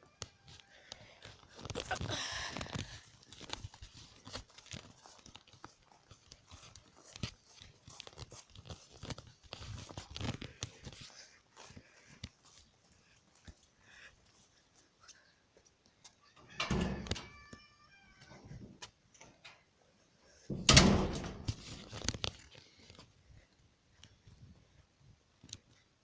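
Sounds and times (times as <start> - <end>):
crunching and rustling: 0.2 - 13.7, 21.2 - 24.2.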